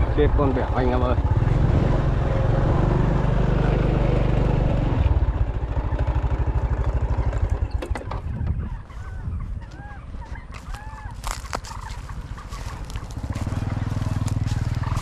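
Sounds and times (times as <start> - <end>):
small motorcycle engine idling: 5.0 - 8.2, 10.6 - 15.0.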